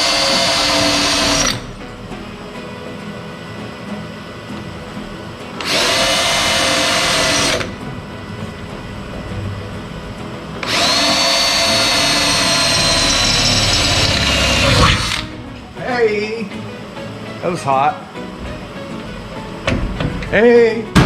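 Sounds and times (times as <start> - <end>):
power tool whining: 0.0 - 20.4.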